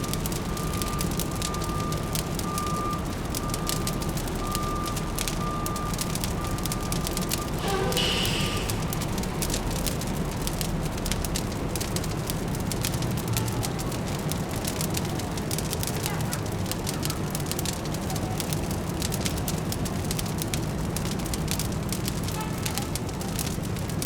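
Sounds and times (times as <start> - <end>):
low city hum: 0.0 - 18.0
wood fire crackling: 0.0 - 24.0.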